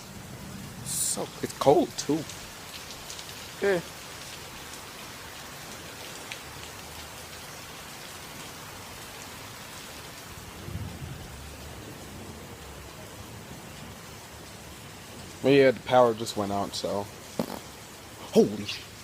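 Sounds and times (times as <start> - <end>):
heavy rain falling: 0.0 - 19.0
low rumble of thunder: 10.4 - 13.6.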